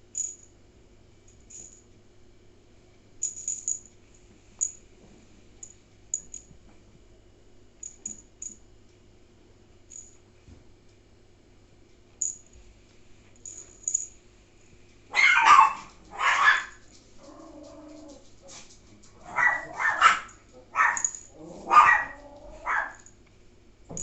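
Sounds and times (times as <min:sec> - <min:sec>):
dog barking: 0:15.1 - 0:16.8, 0:19.2 - 0:23.1
dog whining: 0:19.2 - 0:23.0.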